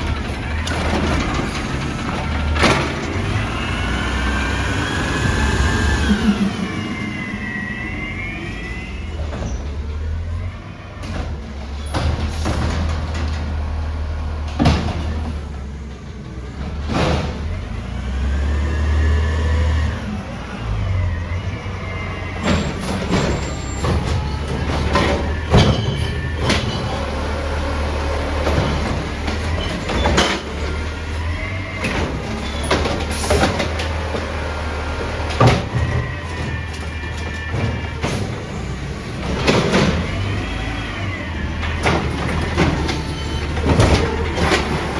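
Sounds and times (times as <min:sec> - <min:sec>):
hydraulic whine: 0:00.0 - 0:10.4
garbage truck engine drone: 0:00.0 - 0:44.9.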